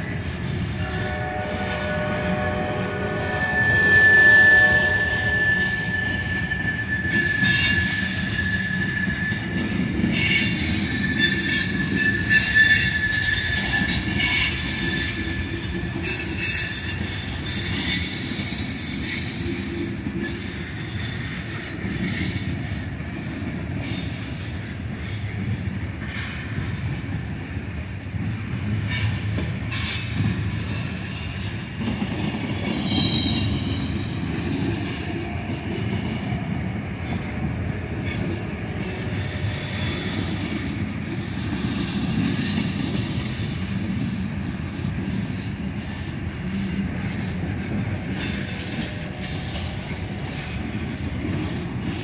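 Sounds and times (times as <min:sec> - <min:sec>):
high wheel squeal: 0:00.9 - 0:22.7, 0:32.5 - 0:37.3.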